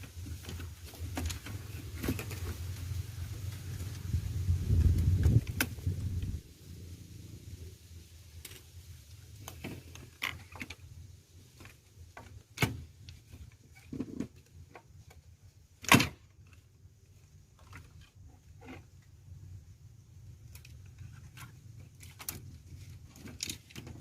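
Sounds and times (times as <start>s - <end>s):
small parts clicking and knocking: 20.3s - 24.0s.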